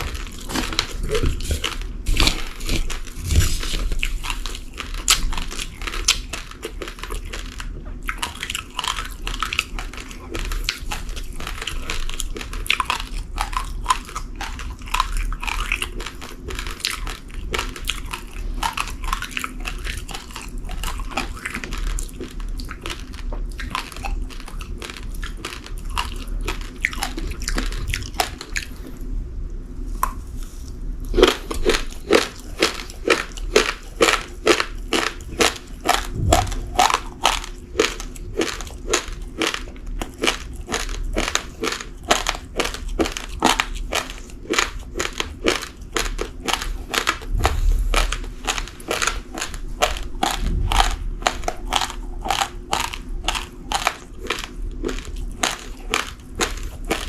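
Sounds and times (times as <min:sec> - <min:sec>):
rice grains crunched by teeth: 0:31.0 - 0:57.0.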